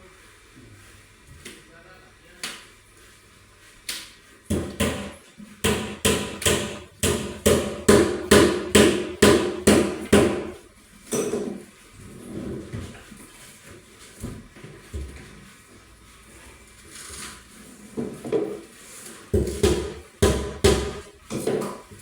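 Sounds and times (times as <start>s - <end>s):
hammer striking: 4.5s - 10.6s, 19.4s - 21.1s.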